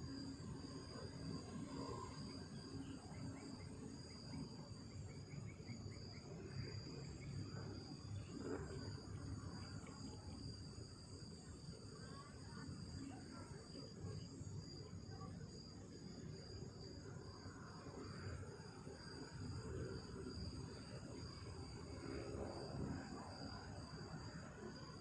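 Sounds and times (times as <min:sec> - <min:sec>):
crickets chirping: 0:00.0 - 0:25.0.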